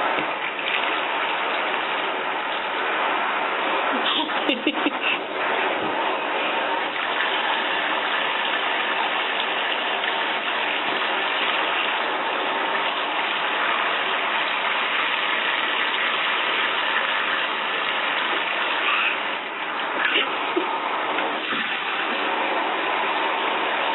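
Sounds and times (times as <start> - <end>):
shower spraying into bathtub: 0.0 - 23.9.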